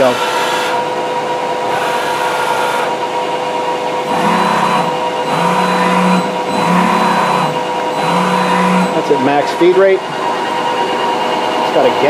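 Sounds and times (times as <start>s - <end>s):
lathe mechanical whine: 0.0s - 12.0s
low hum: 4.0s - 9.2s.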